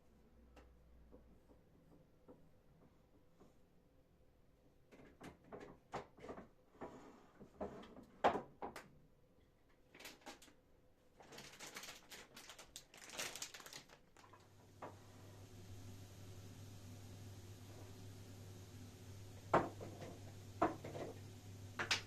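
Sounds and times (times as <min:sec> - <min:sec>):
knocks and clicks of objects: 0:19.5 - 0:21.2.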